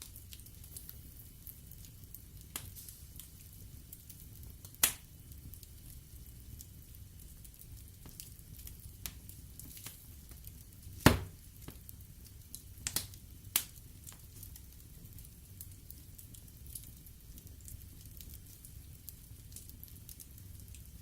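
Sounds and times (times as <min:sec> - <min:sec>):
wood fire crackling: 0:00.0 - 0:21.0
sharp pops of burning wood: 0:02.5 - 0:03.4, 0:04.0 - 0:05.6, 0:09.0 - 0:14.7.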